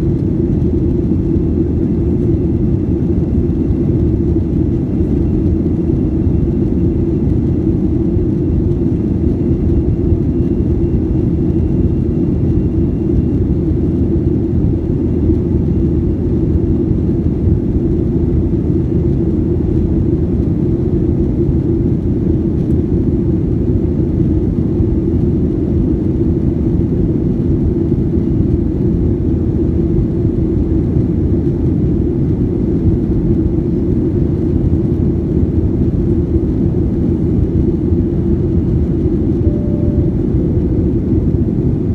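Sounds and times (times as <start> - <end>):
jet engine cabin rumble: 0.0 - 41.9
faint thin whine: 39.2 - 41.5.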